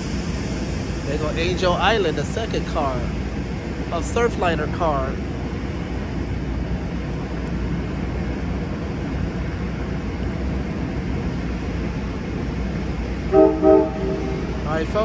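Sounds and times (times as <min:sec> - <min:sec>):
diesel engine rumble: 0:00.0 - 0:15.0
train horn blasts: 0:13.3 - 0:14.9.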